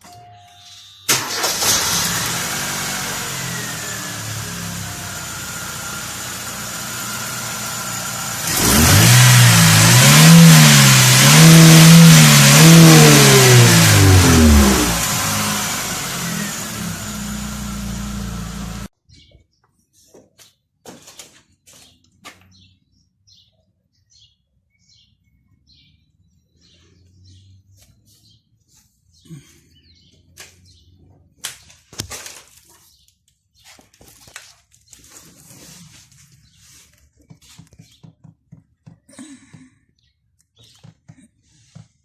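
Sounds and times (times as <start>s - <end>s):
car engine starting and revving: 1.1s - 18.9s.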